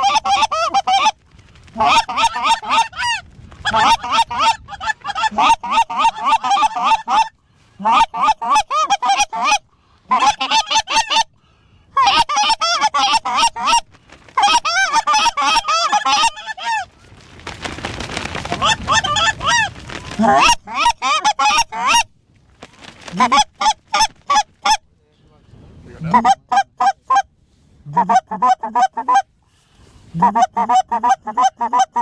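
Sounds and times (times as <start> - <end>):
geese honking: 1.8 - 11.3, 12.0 - 16.9, 18.5 - 22.1, 23.1 - 24.8.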